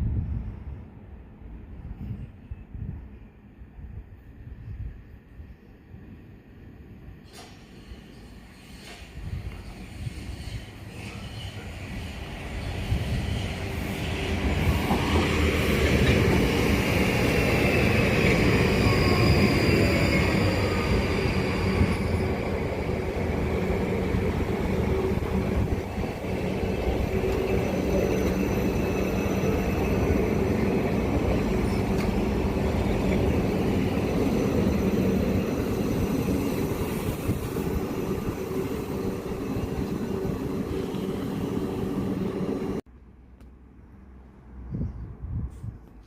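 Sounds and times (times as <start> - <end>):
train wheels rumbling on rails: 7.2 - 42.8
train motor hum: 13.5 - 42.8.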